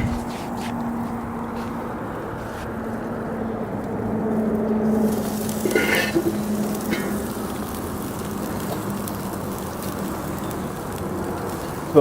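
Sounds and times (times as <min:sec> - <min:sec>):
chicken sizzling on a grill: 0:03.2 - 0:12.0.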